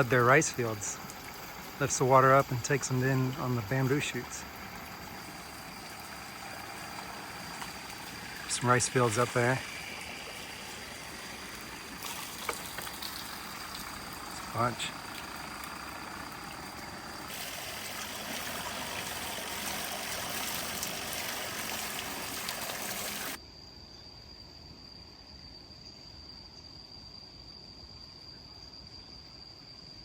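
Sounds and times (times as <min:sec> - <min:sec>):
water pouring and splashing: 0:00.0 - 0:23.4
insect shrilling: 0:02.6 - 0:15.1.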